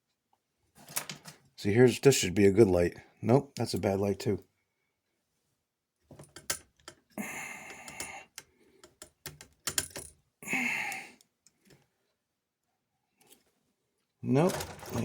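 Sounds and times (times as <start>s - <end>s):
small hard parts clicking and rattling: 6.1s - 10.2s, 14.3s - 15.0s.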